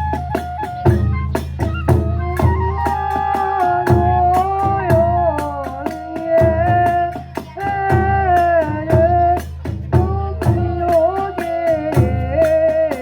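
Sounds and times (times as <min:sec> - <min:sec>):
bamboo flute melody: 0:00.0 - 0:06.8, 0:10.5 - 0:13.0
taiko drum beats: 0:00.0 - 0:13.0.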